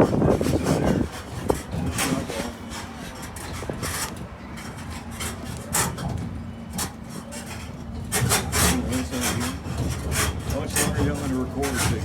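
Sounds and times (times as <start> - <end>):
tram rolling rumble: 0.0 - 12.0
rattling and scraping: 7.4 - 12.0.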